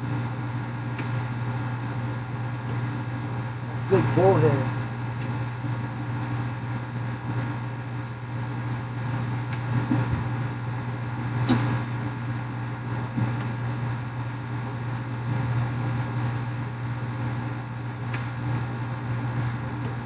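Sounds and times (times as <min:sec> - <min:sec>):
low machine hum: 0:00.0 - 0:20.0
sharp click: 0:11.4 - 0:11.7.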